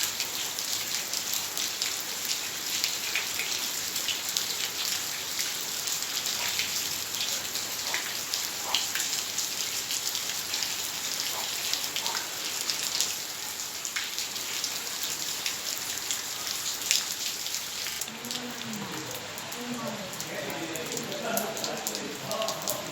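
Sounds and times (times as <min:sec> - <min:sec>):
heavy rain: 0:00.0 - 0:22.9.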